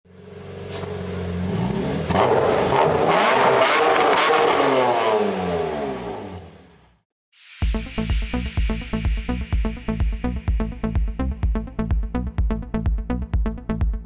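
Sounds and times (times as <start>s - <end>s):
diesel engine accelerating hard: 0.1s - 6.8s.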